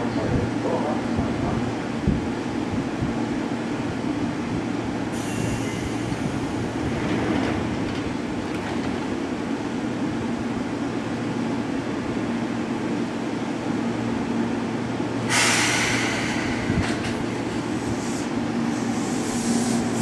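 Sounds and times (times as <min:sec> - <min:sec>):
electric train equipment hum: 0:00.0 - 0:20.0
brief air hiss: 0:05.2 - 0:06.2, 0:15.3 - 0:17.2, 0:17.8 - 0:20.0.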